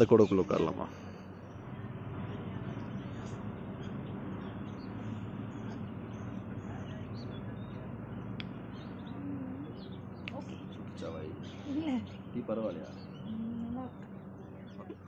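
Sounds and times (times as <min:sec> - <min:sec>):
small birds chirping: 0:00.0 - 0:15.0
steady outdoor background noise: 0:00.0 - 0:15.0
sharp tick: 0:08.4 - 0:08.6.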